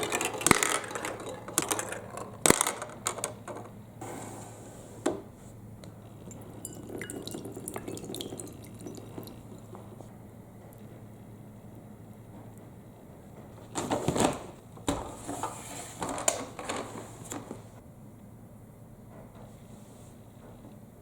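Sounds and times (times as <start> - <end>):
marbles clattering in plastic run: 0.0 - 3.7
water trickling and dripping: 6.3 - 9.6.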